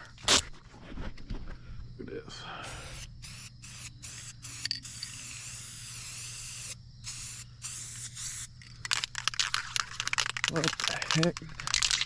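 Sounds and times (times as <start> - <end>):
spray paint can hissing: 2.6 - 10.4.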